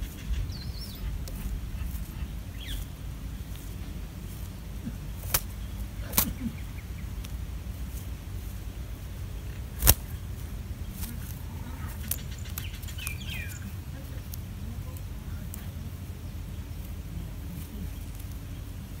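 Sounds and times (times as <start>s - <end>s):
faint bird chirps: 0.0s - 7.2s, 9.0s - 19.0s
low rumble: 0.0s - 19.0s
sharp clicks: 5.2s - 6.4s, 9.5s - 10.2s.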